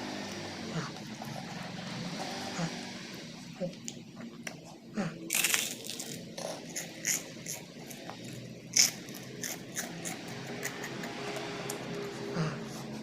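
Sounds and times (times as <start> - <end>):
chewing crunches and clicks: 3.7 - 12.0.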